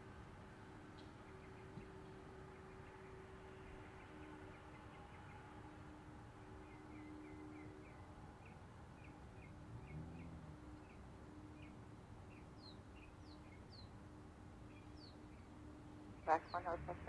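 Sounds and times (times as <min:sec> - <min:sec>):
bird chirping: 0:12.3 - 0:14.0.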